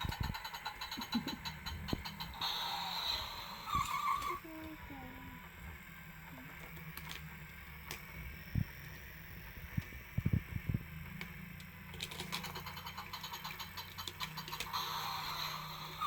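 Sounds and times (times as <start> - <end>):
rapid clicking: 0.0 - 4.2, 11.9 - 16.0.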